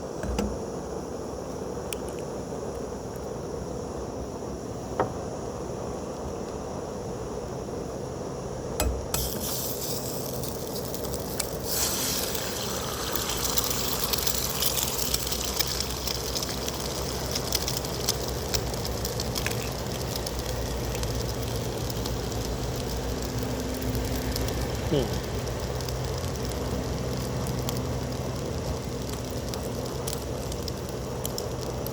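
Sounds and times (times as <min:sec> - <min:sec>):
sharp pops and clicks: 0:08.8 - 0:24.7, 0:25.4 - 0:31.9
food sizzling in a frying pan: 0:09.1 - 0:31.9.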